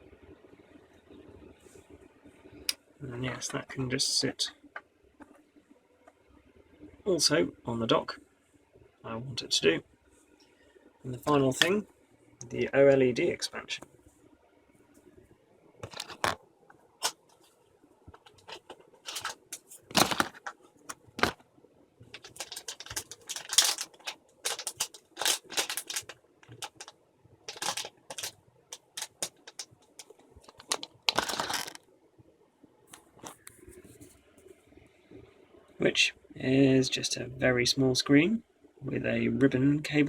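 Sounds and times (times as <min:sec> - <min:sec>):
packaging rustling: 0:15.8 - 0:16.4, 0:18.2 - 0:21.4, 0:22.2 - 0:26.9, 0:27.5 - 0:31.8
clicks and taps of handling: 0:27.5 - 0:31.8.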